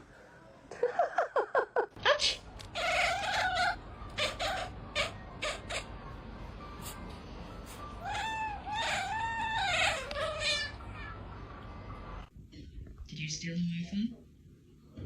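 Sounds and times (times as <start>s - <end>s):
cat meowing: 8.0s - 11.2s.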